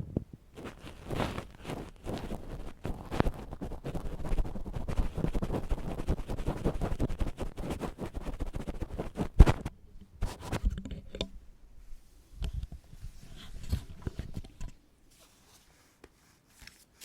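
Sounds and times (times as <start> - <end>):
ear pick scraping: 0.6 - 11.4.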